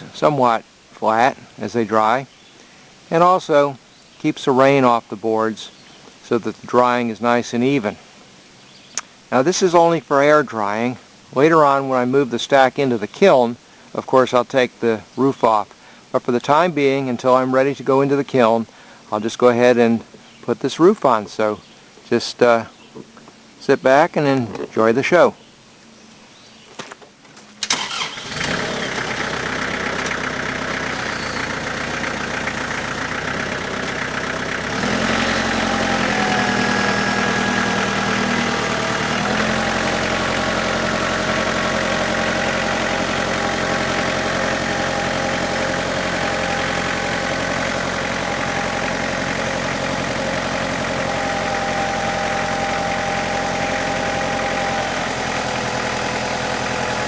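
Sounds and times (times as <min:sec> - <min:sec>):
tractor engine running: 0:27.7 - 0:57.0.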